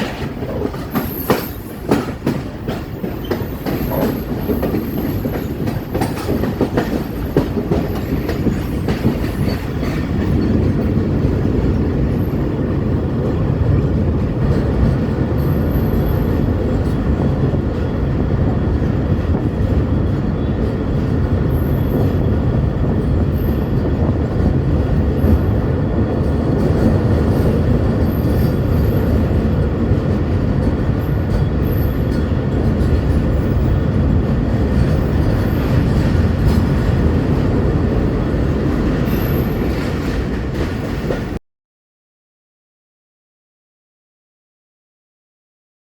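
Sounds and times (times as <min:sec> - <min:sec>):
train rumbling over bridge: 0:00.0 - 0:41.4.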